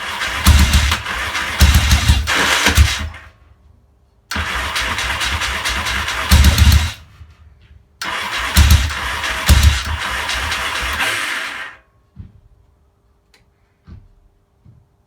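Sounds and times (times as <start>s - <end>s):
motorcycle engine running roughly: 0.0s - 3.3s, 4.3s - 7.2s, 8.0s - 11.8s.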